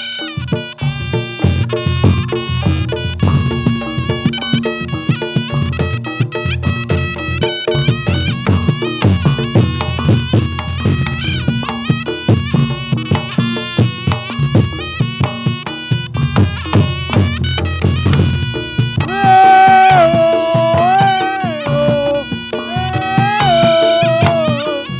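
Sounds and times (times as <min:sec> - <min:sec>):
rapid drumming: 0:16.4 - 0:24.9.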